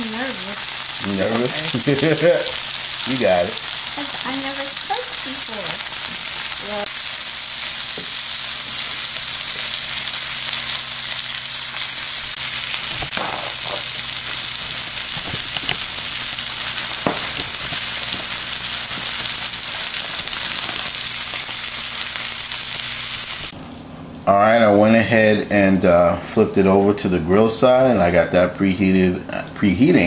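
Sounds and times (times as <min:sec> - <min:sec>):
vegetables sizzling on griddle: 0:00.0 - 0:23.8.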